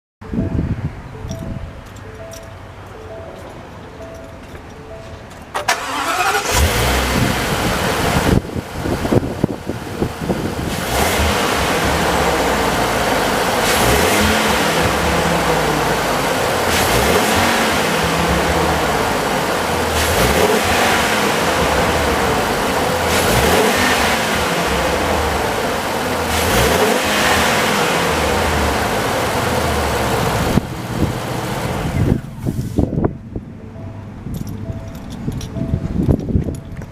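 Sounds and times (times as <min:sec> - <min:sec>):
truck engine revving: 0:05.5 - 0:32.8.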